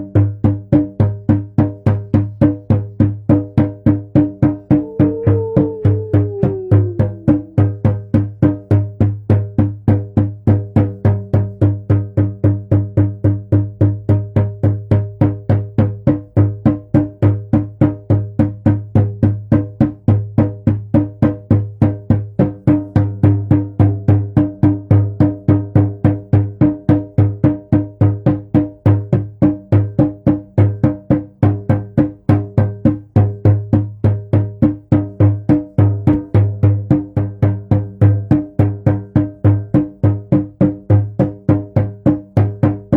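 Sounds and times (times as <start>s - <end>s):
hand drum deep booming: 0.2s - 22.0s.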